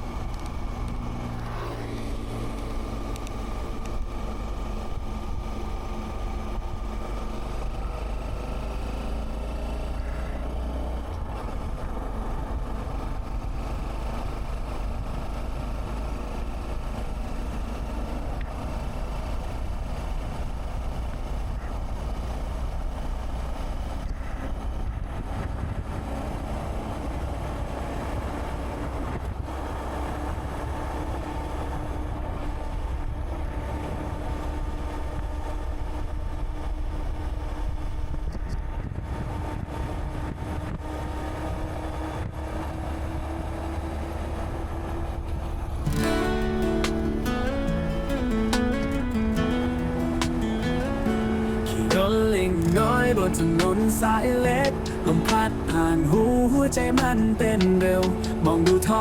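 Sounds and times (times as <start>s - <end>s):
motorcycle engine running: 0.0s - 39.0s, 44.4s - 59.0s
wind buffeting microphone: 10.4s - 46.2s.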